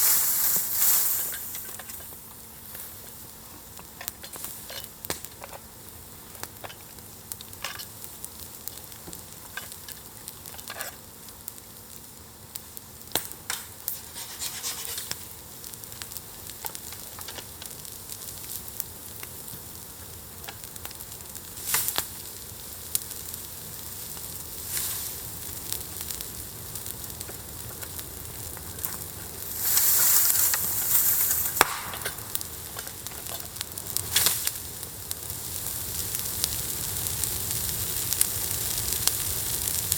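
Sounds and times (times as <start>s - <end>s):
rushing hiss: 0.0s - 3.1s, 23.9s - 26.3s, 29.4s - 32.8s
bonfire crackling and popping: 0.0s - 39.9s.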